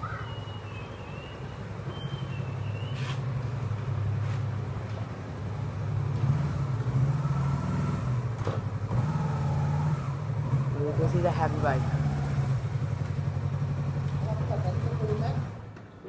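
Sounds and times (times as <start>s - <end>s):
heavy motorcycle engine humming: 8.0s - 15.7s.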